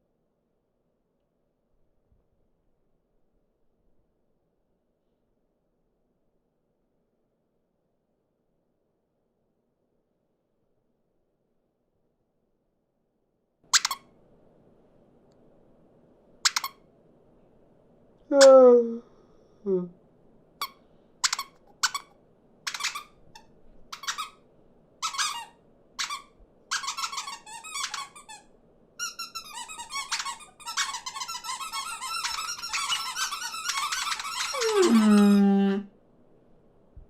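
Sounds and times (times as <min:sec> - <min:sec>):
cartoon bird chirps: 0:13.8 - 0:14.0, 0:20.6 - 0:22.1, 0:34.1 - 0:35.7.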